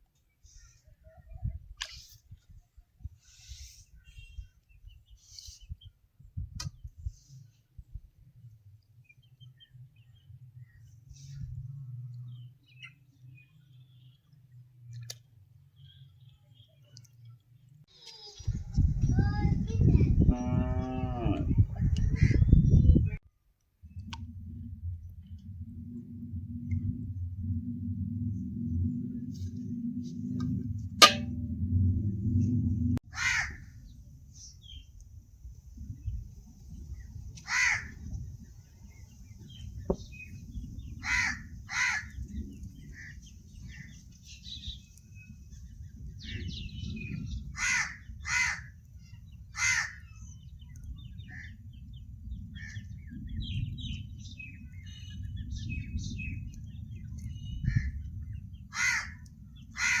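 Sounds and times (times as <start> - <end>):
low steady rumble: 23.8 - 33.0
crows cawing: 33.2 - 33.6, 37.5 - 37.9, 41.0 - 42.1, 47.6 - 48.7, 49.6 - 50.0, 58.7 - 59.2, 59.8 - 60.0.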